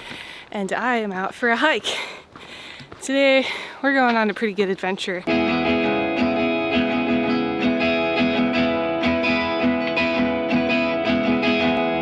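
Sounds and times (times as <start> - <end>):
guitar strumming chords: 5.3 - 12.0.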